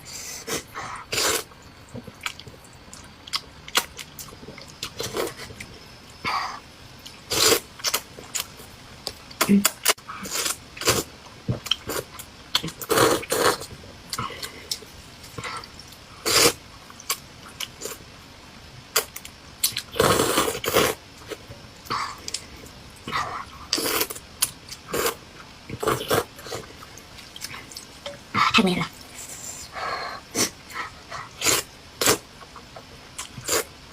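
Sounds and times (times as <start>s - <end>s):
person slurping and chewing: 10.2s - 14.8s, 19.7s - 21.4s, 23.7s - 24.2s, 24.9s - 26.8s.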